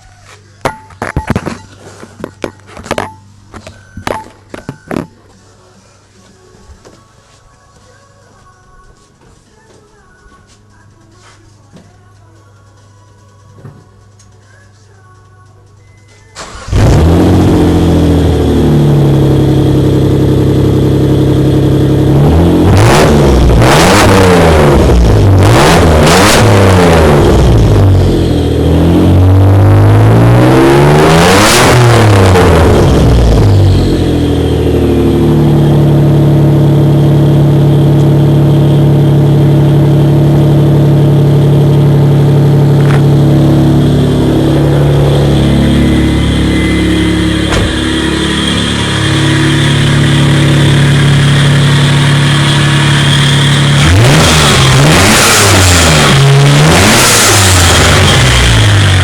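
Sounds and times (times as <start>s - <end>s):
car engine revving and idling: 16.4s - 59.0s.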